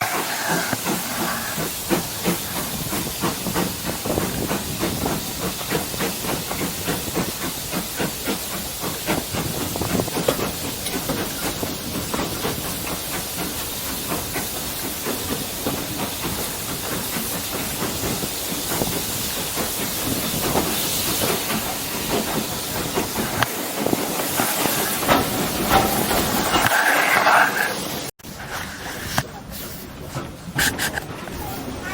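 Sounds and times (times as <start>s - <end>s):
steam hissing: 0.0s - 31.9s.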